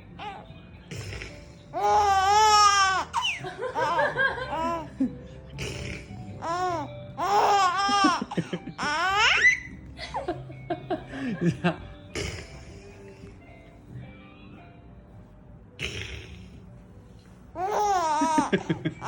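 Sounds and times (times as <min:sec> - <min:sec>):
baby laughing and squealing: 0:01.8 - 0:04.9, 0:06.4 - 0:09.7, 0:17.6 - 0:18.7.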